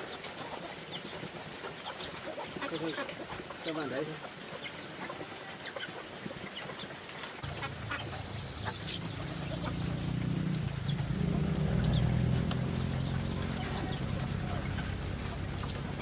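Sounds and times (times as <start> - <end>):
chickens clucking and peeping: 0.0 - 16.0
low rumble: 7.4 - 16.0.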